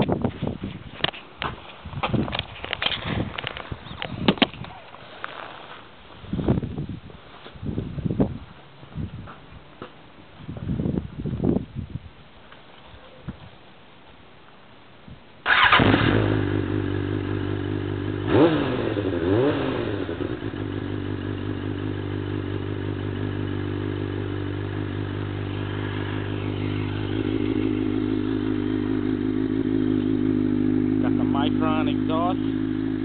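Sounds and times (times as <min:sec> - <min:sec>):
motorcycle engine starting and idling: 0:15.4 - 0:33.0.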